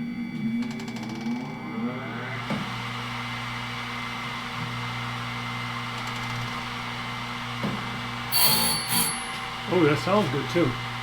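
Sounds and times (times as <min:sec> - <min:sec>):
blade sharpener motor hum: 0:08.3 - 0:09.6.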